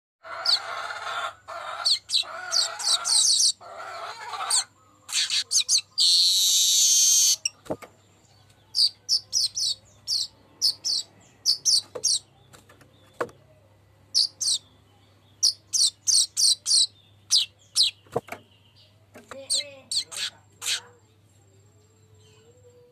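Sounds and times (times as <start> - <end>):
weaver bird singing: 1.7 - 3.6, 4.4 - 13.4, 14.1 - 21.0.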